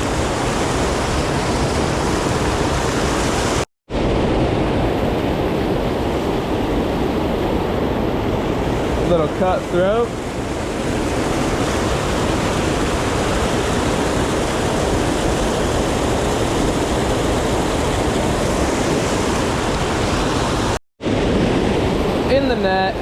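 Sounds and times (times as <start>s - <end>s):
rushing creek water: 0.0s - 3.6s, 8.4s - 20.8s.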